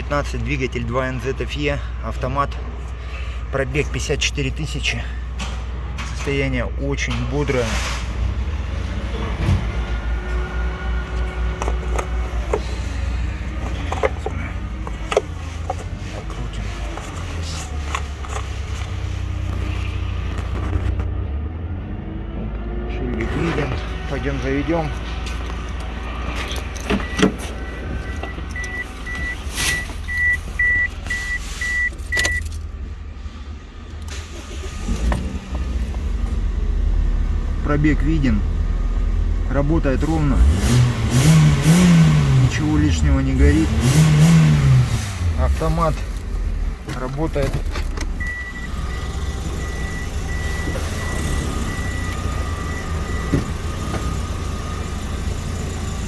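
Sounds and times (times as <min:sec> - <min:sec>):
car engine starting: 0:00.0 - 0:56.0
car door clicks and clunks: 0:26.4 - 0:28.8
car warning chime beeping: 0:26.9 - 0:32.5, 0:48.0 - 0:56.0.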